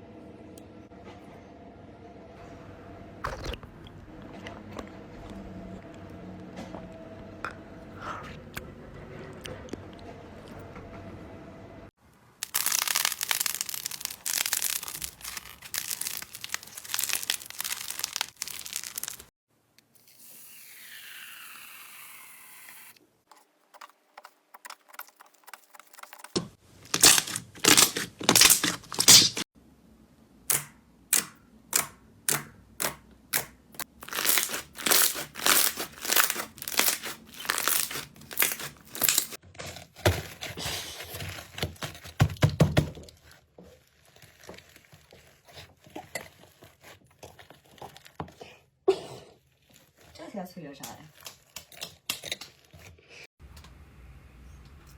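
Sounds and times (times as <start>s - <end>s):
crunchy slime crackling: 12.4s - 19.3s, 26.8s - 29.5s, 33.3s - 42.2s, 43.1s - 48.5s.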